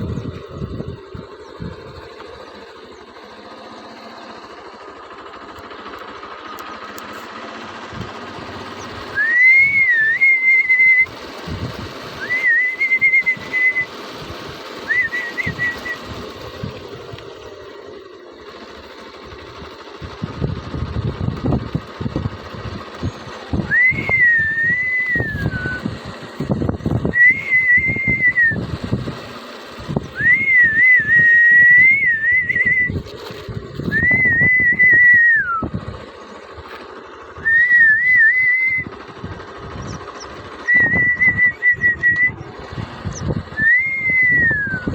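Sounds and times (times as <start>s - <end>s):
low rumbling noise: 0.0s - 44.9s
person whistling: 9.0s - 11.2s, 12.2s - 14.0s, 14.8s - 16.2s, 23.5s - 26.0s, 27.0s - 28.8s, 30.1s - 33.0s, 33.8s - 35.8s, 37.4s - 39.0s, 40.6s - 42.5s, 43.1s - 44.9s.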